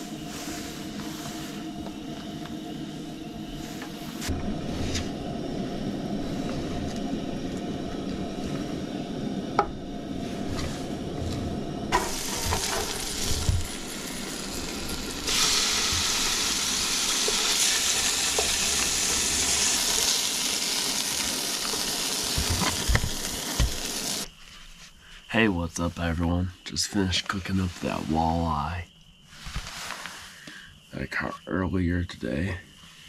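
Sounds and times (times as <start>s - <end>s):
fish sizzling in a frying pan: 11.9s - 24.3s.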